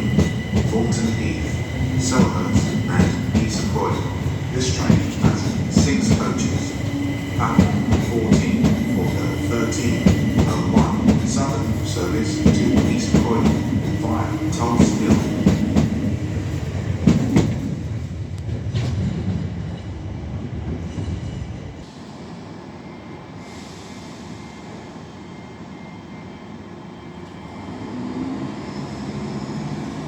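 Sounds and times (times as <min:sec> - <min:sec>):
train rumble: 0:00.0 - 0:22.2.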